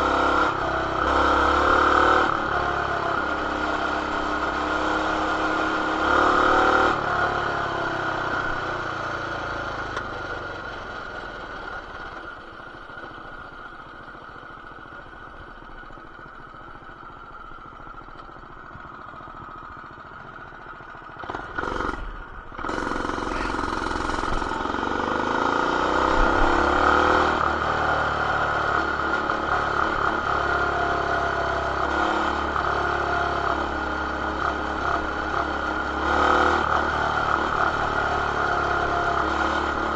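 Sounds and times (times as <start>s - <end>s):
mini bike engine revving: 0.0s - 8.3s, 21.2s - 39.9s.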